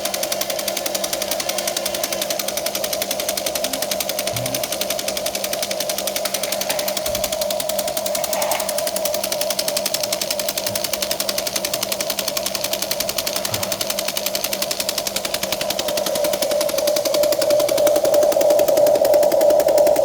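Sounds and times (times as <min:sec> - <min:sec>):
toy excavator motor whirring: 0:00.0 - 0:20.0.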